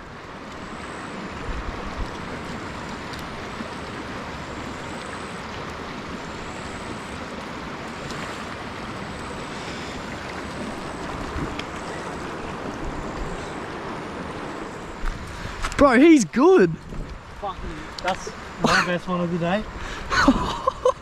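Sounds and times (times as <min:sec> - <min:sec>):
creek water running over rocks: 0:00.0 - 0:20.2.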